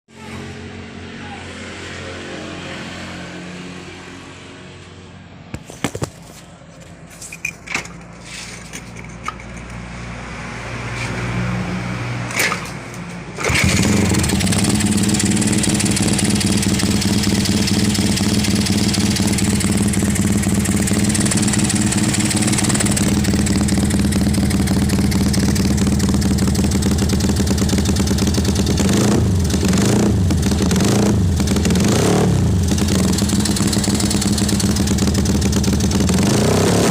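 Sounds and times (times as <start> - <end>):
motorcycle engine running: 12.9 - 36.9.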